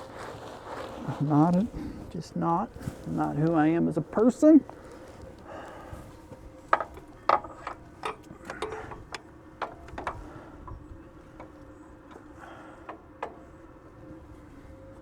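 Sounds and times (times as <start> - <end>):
metal tools clicking and knocking: 6.7 - 10.8.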